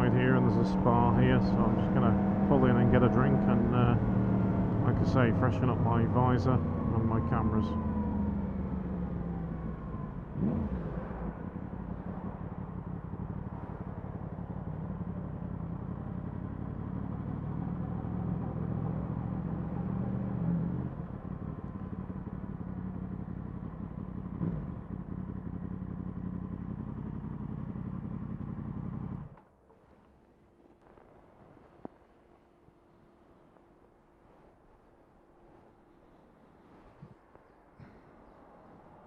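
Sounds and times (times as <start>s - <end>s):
motorcycle engine running: 0.0s - 29.4s.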